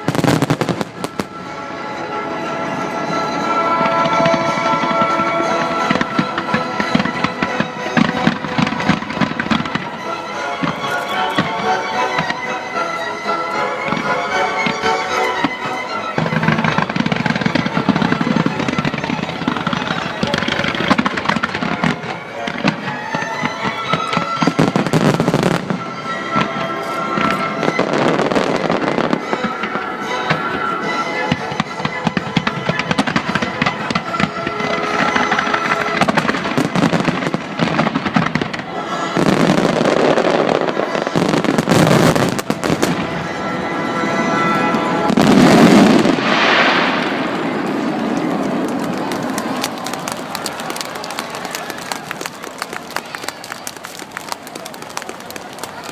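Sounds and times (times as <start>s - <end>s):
fireworks bursting and crackling: 0.0s - 55.9s
music playing: 0.0s - 55.9s.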